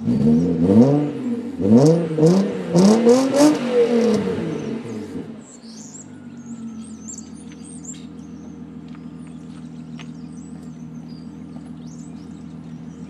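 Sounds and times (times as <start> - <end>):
car engine idling: 0.0 - 13.0
high chirps: 4.4 - 13.0.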